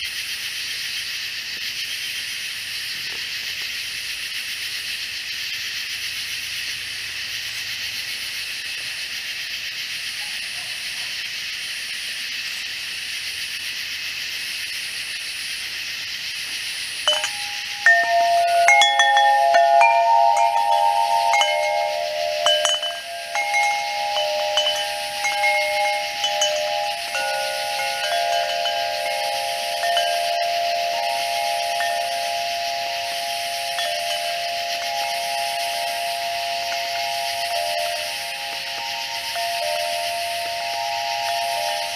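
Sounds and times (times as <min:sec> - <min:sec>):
katydids and cicadas droning: 0:00.0 - 0:41.9
bell-like tones ringing: 0:17.1 - 0:41.9.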